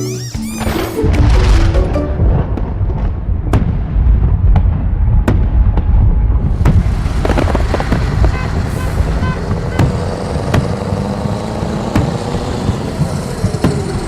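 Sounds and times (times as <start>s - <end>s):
fireworks booming: 0.6s - 14.0s
fireworks hissing: 6.5s - 10.1s.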